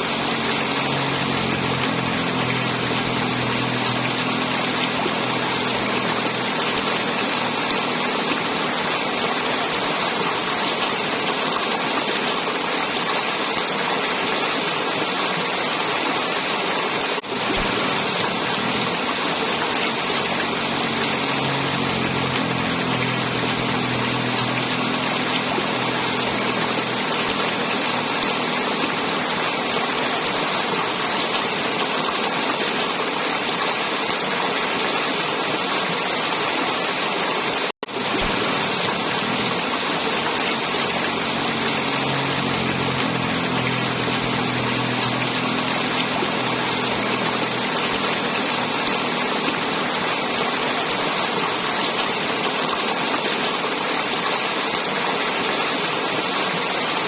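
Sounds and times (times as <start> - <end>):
low motor hum: 0.0 - 11.8, 17.2 - 32.1, 37.8 - 52.7
river water flowing: 0.0 - 57.0.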